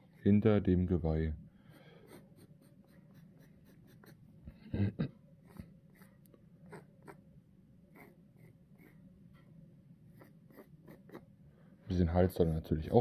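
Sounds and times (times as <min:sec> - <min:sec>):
pen scratching on wood: 0:02.1 - 0:04.2, 0:10.2 - 0:11.3.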